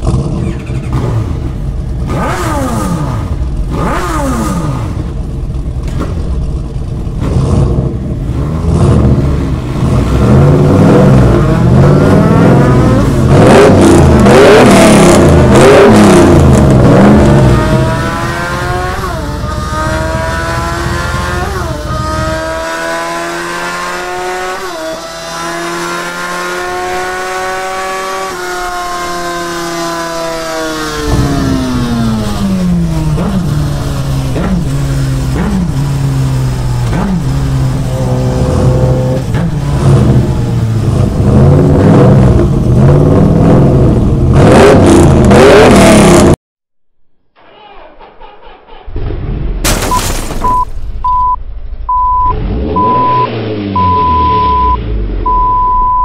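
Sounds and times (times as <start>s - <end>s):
car engine revving: 0.0s - 46.4s, 51.9s - 56.0s
reversing beeps: 50.4s - 56.0s.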